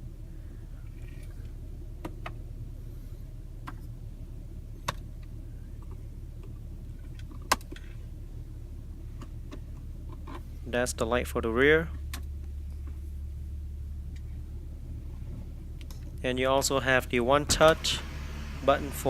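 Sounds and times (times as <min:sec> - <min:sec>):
low cabin hum: 0:00.0 - 0:19.0.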